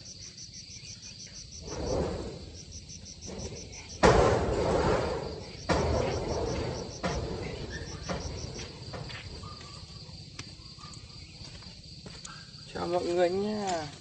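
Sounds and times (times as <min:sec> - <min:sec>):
insect chirping in rapid pulses: 0:00.0 - 0:14.0
rustling noise: 0:01.6 - 0:10.0.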